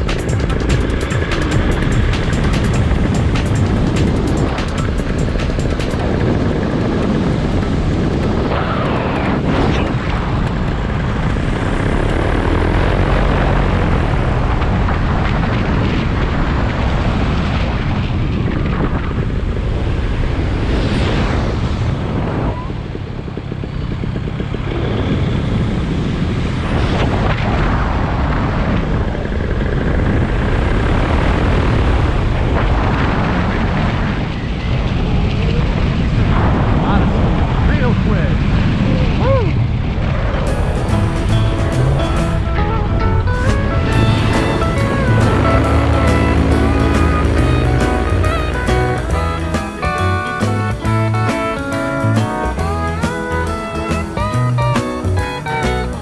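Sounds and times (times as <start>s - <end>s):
model aircraft propeller whirring: 0.0s - 16.6s
rushing wind: 0.0s - 56.0s.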